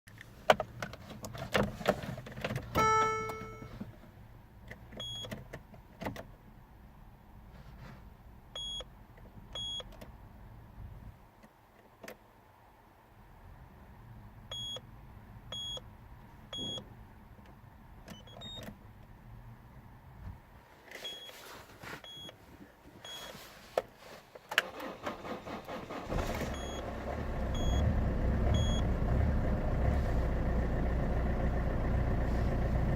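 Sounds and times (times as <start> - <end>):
short electronic beeps: 2.8 - 3.7, 26.5 - 26.8, 27.5 - 27.8, 28.6 - 28.8
diesel engine idling: 24.8 - 32.9.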